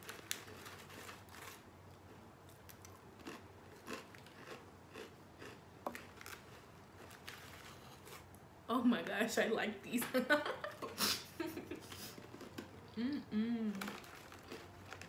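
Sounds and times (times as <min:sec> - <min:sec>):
crunching potato chips: 0:00.0 - 0:08.3, 0:13.7 - 0:15.0.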